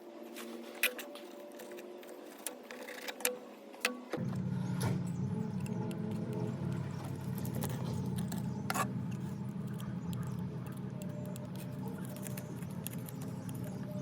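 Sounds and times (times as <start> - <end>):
motor humming: 4.0 - 14.0.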